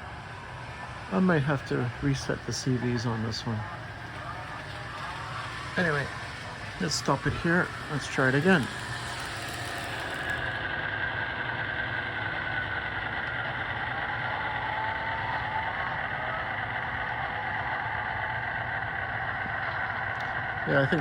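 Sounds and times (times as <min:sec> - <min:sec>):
diesel engine sound through small speaker: 0:00.0 - 0:21.0.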